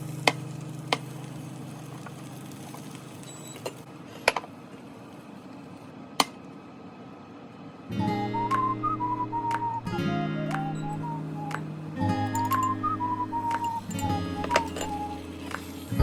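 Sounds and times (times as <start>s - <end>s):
clinks of kitchen utensils and dishes: 3.3s - 4.5s, 12.1s - 15.9s
background guitar music: 7.9s - 16.0s
whistled melody: 7.9s - 16.0s.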